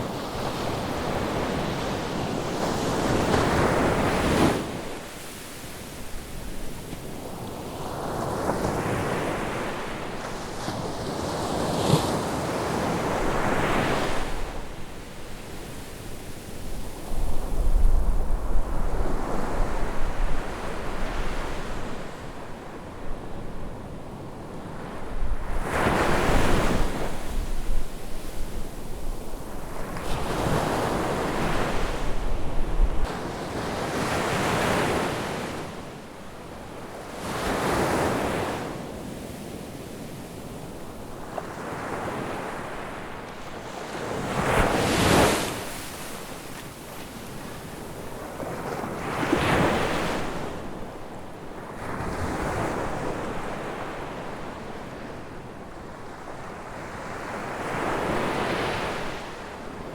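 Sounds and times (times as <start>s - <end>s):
ocean waves breaking on beach: 0.0s - 23.1s, 23.7s - 59.9s
wind rumble on microphone: 16.5s - 22.1s, 25.0s - 33.3s.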